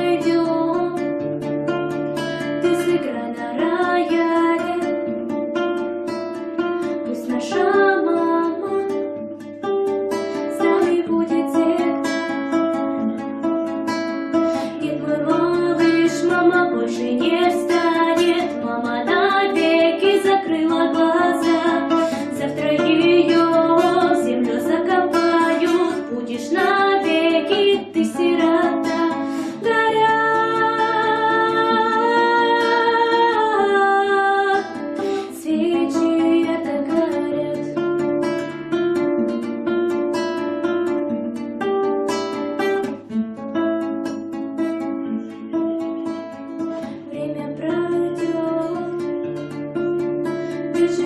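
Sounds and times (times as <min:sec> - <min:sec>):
plucked acoustic guitar melody: 0:00.0 - 0:51.0.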